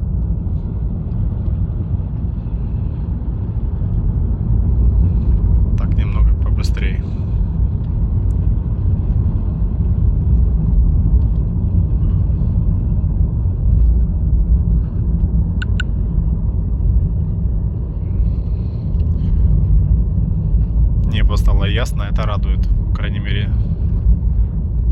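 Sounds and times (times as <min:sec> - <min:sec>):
road and tyre rumble in car cabin: 0:00.0 - 0:24.9
brief clicks: 0:15.6 - 0:15.9.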